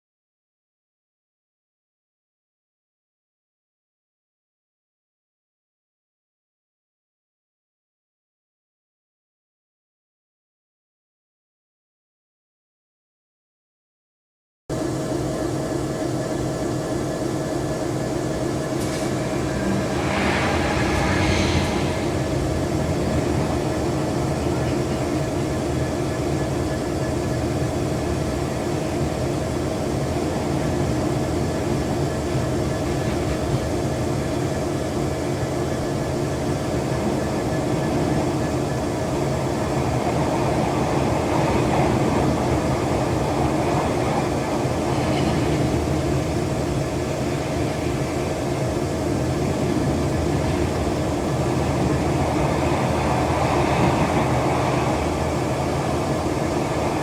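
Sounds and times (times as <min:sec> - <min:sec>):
train rumbling on rails: 0:14.7 - 0:57.0
steady hum: 0:14.8 - 0:57.0.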